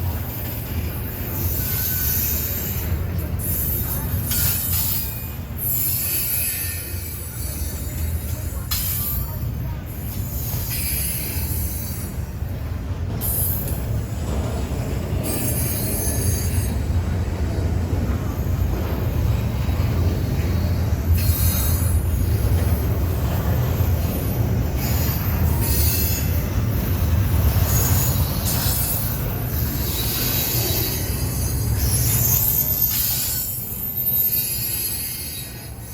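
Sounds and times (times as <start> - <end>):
freight train rumbling: 0.0 - 35.9
train wheels squealing on rails: 0.0 - 35.9.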